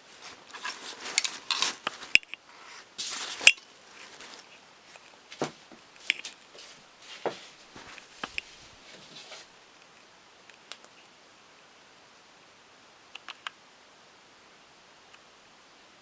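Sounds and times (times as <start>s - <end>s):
sharp handling clicks and knocks: 0.5s - 2.4s.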